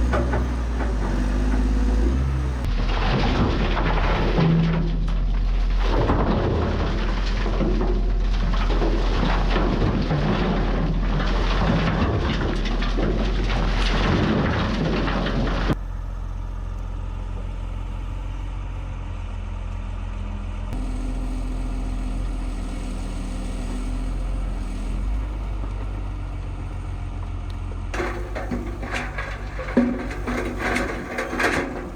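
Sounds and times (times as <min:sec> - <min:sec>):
engine humming: 0:00.0 - 0:31.9.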